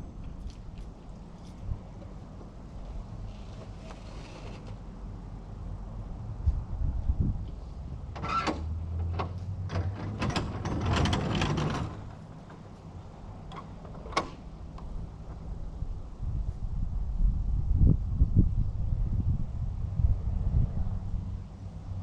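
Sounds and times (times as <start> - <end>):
chassis clicks and rattles on rock: 9.0 - 12.7.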